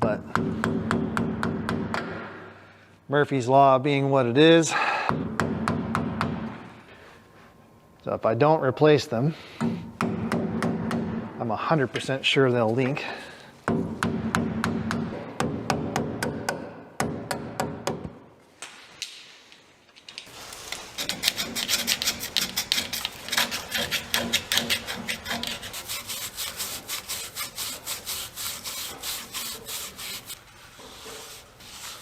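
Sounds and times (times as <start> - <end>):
hand tool scraping strokes: 20.2 - 32.0.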